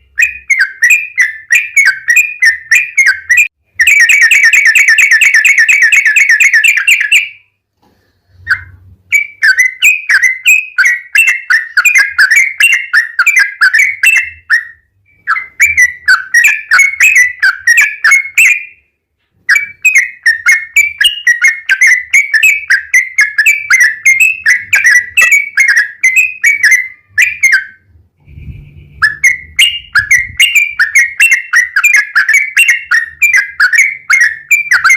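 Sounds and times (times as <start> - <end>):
bird singing bubbling notes: 19.5 - 34.9.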